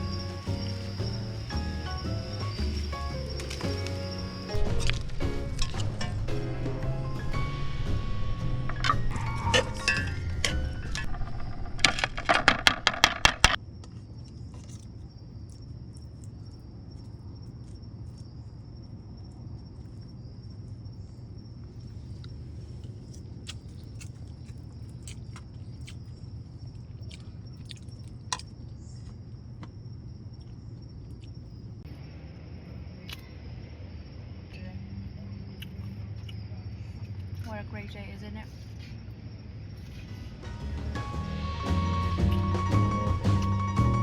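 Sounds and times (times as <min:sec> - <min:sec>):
background music: 0:00.0 - 0:11.2, 0:40.1 - 0:44.0
rhythmic clinking: 0:00.0 - 0:13.6, 0:40.3 - 0:44.0
low hum: 0:00.0 - 0:14.5
insect chorus droning: 0:00.0 - 0:44.0.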